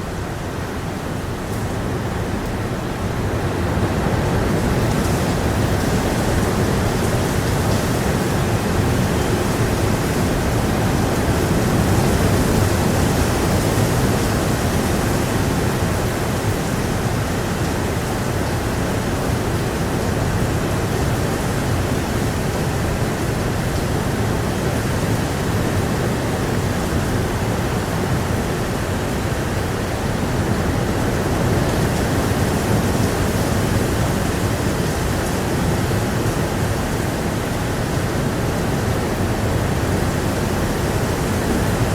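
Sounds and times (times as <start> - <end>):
heavy rain: 0.0 - 41.9.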